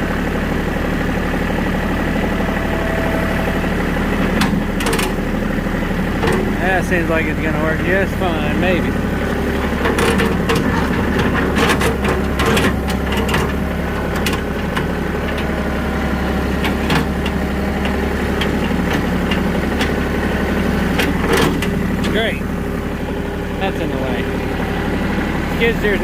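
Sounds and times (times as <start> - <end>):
tractor engine running: 0.0 - 26.0
clanks and rattles: 4.1 - 23.5.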